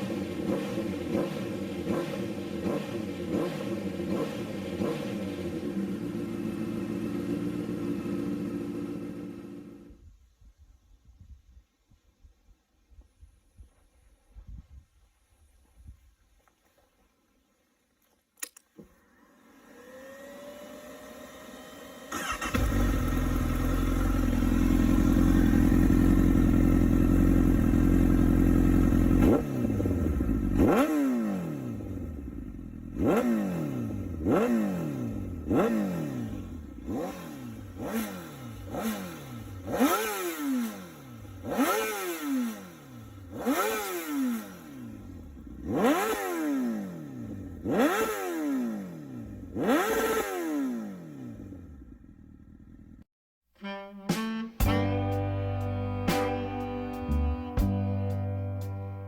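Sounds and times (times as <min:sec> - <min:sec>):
motorcycle engine idling: 0:00.0 - 0:10.0, 0:21.1 - 0:30.8, 0:31.6 - 0:33.2, 0:51.2 - 0:53.0
motorcycle engine revving: 0:00.0 - 0:10.0, 0:19.1 - 0:53.1
starter whine: 0:18.4 - 0:30.6.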